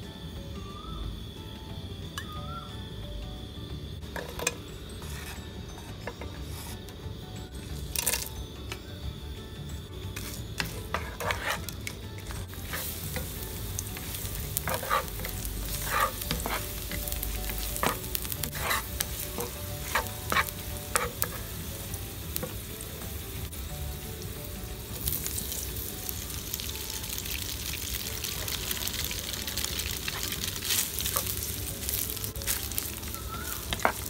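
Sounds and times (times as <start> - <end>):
food sizzling in oil: 3.8 - 34.0
wooden spatula scraping pan: 4.2 - 6.8, 10.2 - 13.2, 14.0 - 21.5.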